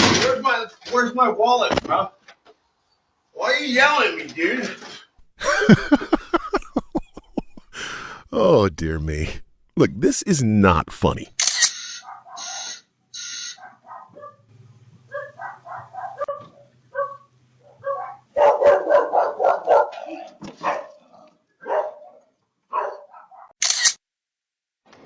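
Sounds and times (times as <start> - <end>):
dog barking: 12.0 - 12.7, 13.6 - 14.5, 15.1 - 23.6.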